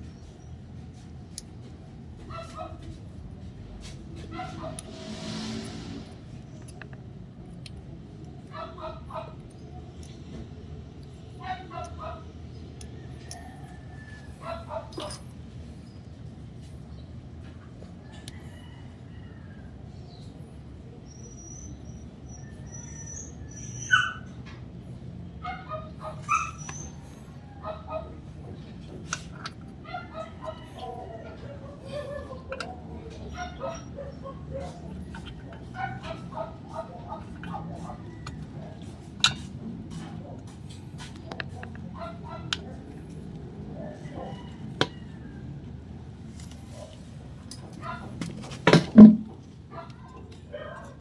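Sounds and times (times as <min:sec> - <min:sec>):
low background hum: 0:00.0 - 0:51.0
dog whimpering and yelping: 0:21.1 - 0:24.4, 0:25.4 - 0:28.1, 0:29.8 - 0:34.9.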